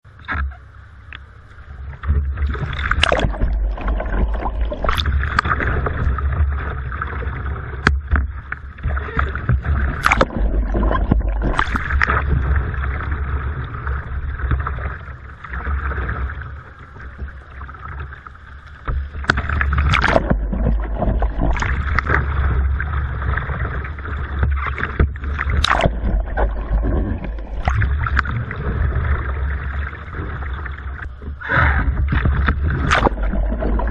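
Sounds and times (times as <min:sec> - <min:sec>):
low rumble of water against hull: 0:00.0 - 0:33.9
water sloshing around a kayak: 0:00.1 - 0:33.9
sharp paddle splashes: 0:02.6 - 0:05.7, 0:09.8 - 0:12.2, 0:19.2 - 0:22.2, 0:24.6 - 0:28.3, 0:31.4 - 0:33.6.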